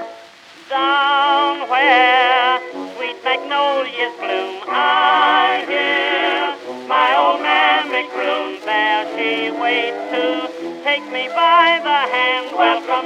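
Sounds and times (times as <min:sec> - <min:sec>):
instrumental accompaniment: 0:00.0 - 0:13.0
man singing with vibrato: 0:00.0 - 0:13.0.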